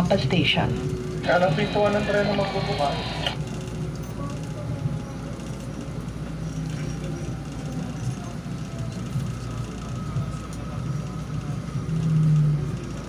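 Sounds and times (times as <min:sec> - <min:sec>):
loud low hum: 0:00.0 - 0:03.9
faint steady whine: 0:00.0 - 0:13.0.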